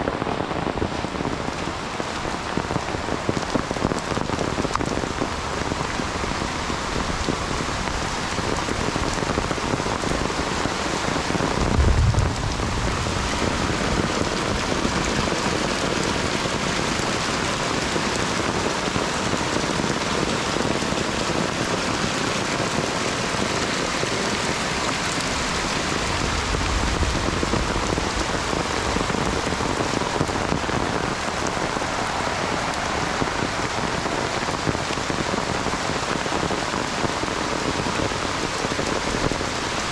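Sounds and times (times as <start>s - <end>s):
heavy rain pouring: 0.0s - 39.9s
low rumble: 11.5s - 15.5s.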